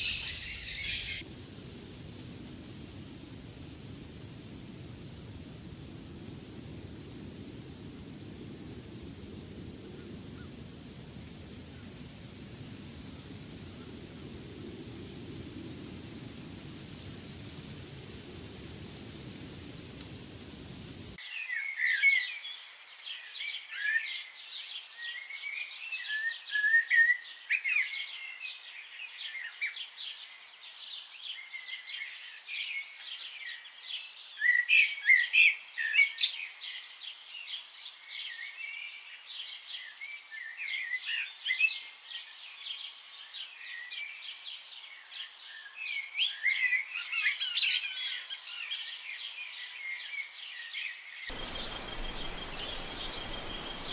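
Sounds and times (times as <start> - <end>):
birds chirping and calling: 0.0 - 1.2, 51.3 - 53.9
steady hiss: 0.0 - 21.2, 51.3 - 53.9.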